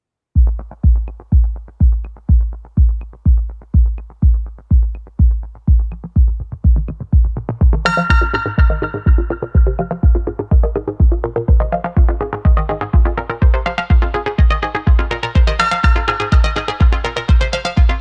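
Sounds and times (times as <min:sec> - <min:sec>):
electronic music: 0:00.4 - 0:18.0
heavy kick drum beating: 0:00.4 - 0:18.0
bright synth: 0:07.9 - 0:18.0.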